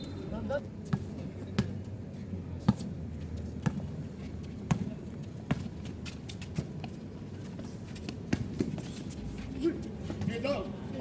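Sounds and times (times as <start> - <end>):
low background noise: 0.0 - 11.0
basketball bouncing on court: 4.7 - 4.9.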